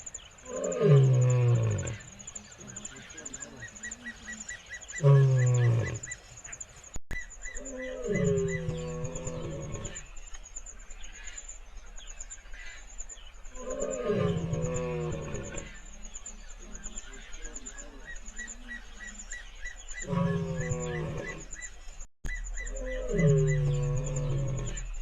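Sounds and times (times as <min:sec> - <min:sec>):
insects chirping: 0:00.0 - 0:25.0
lion roaring: 0:05.0 - 0:06.1, 0:07.6 - 0:10.1, 0:13.6 - 0:15.8, 0:20.0 - 0:21.5, 0:22.7 - 0:25.0.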